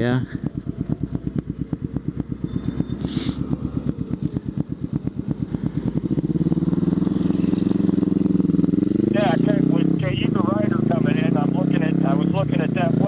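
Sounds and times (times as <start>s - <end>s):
short hiss: 3.0s - 3.4s.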